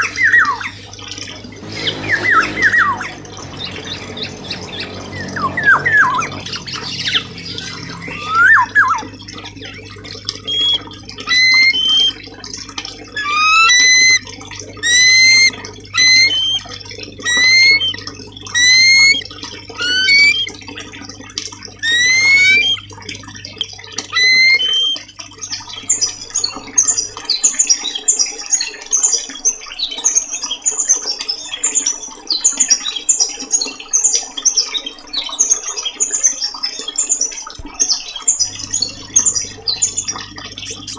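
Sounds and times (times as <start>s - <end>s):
bird twittering: 0.0s - 9.1s, 10.4s - 12.2s, 14.8s - 16.6s, 17.3s - 19.2s, 19.8s - 20.5s, 21.8s - 22.8s, 24.2s - 25.0s, 38.4s - 40.9s
songbird rising whistles: 19.8s - 20.5s, 24.2s - 25.0s.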